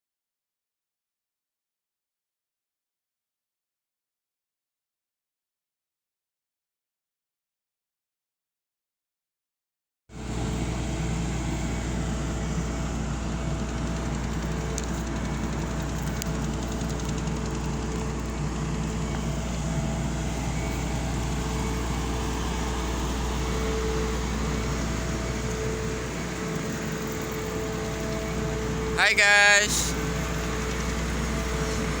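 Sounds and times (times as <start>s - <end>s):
large engine rumbling: 10.2s - 32.0s.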